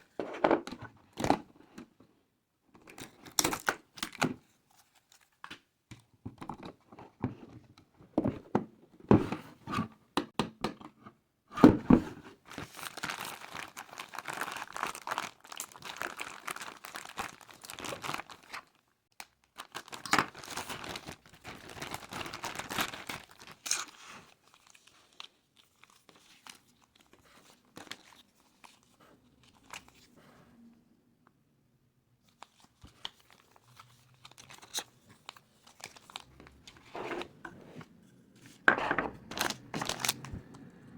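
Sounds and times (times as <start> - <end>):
packaging crinkling and tearing: 12.5 - 30.0, 32.3 - 36.9, 39.2 - 40.6.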